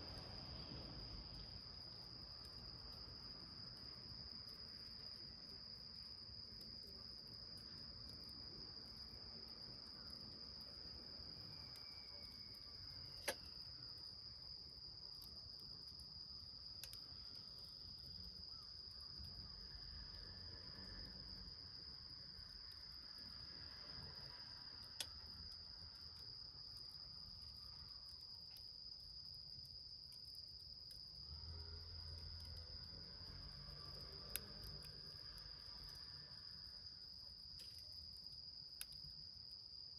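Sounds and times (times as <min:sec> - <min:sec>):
high-pitched insect trill: 0:08.7 - 0:39.9.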